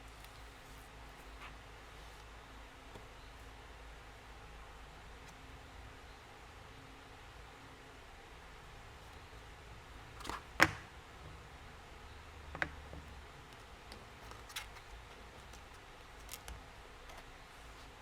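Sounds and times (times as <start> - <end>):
clicks and taps on a desk: 12.5 - 13.1.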